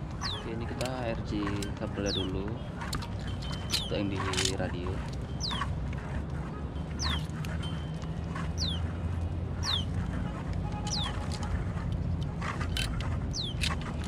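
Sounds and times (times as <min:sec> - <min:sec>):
clicks and rustles: 0:00.6 - 0:14.0.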